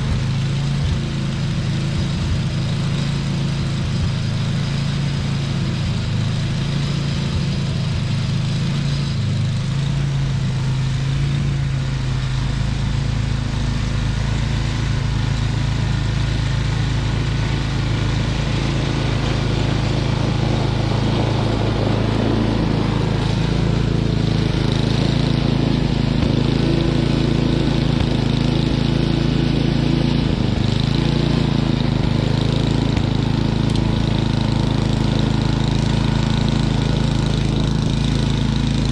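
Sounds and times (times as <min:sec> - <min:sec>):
snowblower engine running: 0:00.0 - 0:38.9.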